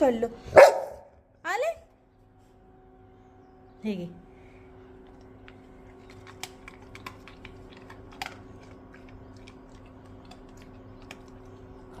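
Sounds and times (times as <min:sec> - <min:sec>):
steady low hum: 0:00.0 - 0:12.0
dog crunching and chewing: 0:04.9 - 0:12.0.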